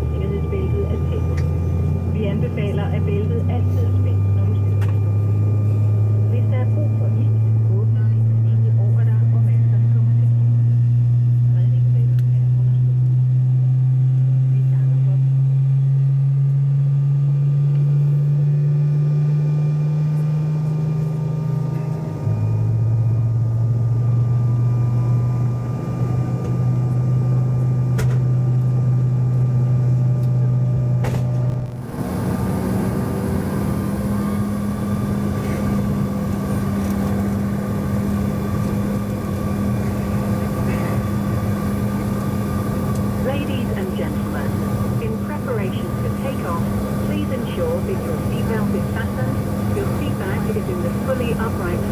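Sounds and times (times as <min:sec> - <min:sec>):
aircraft cabin engine drone: 0:00.0 - 0:51.9.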